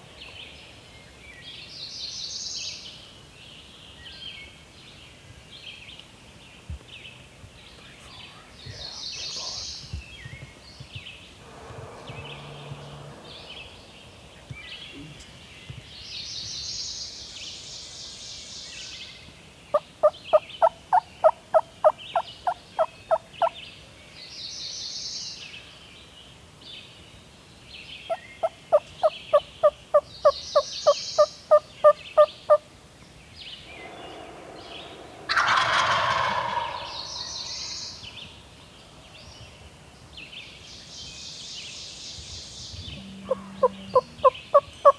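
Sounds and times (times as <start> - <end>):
songbirds singing: 0.0 - 44.9
wild turkey gobble: 33.8 - 38.2, 43.0 - 44.9
turkey yelps: 35.3 - 37.4.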